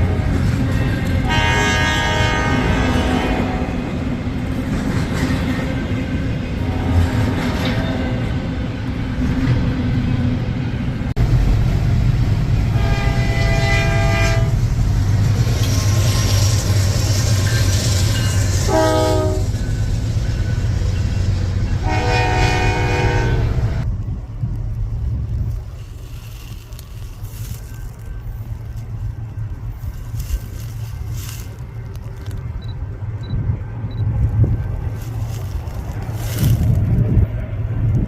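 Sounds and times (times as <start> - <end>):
locomotive engine and rail rumble: 0.0 - 38.0
train air horn blasts: 1.2 - 4.0, 6.6 - 8.2, 12.7 - 14.6, 18.6 - 19.6, 21.8 - 23.8.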